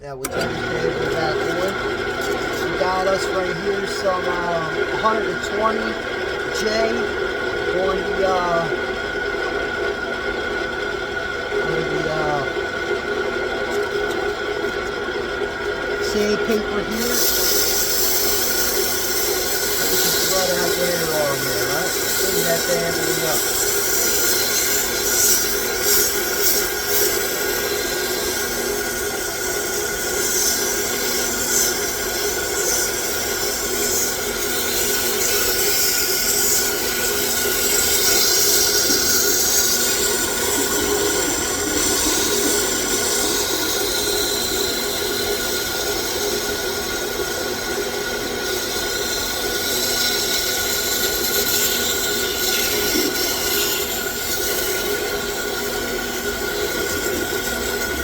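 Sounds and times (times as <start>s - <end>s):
lathe humming: 0.0s - 58.0s
sandpaper hissing on workpiece: 16.9s - 46.1s, 48.4s - 57.8s.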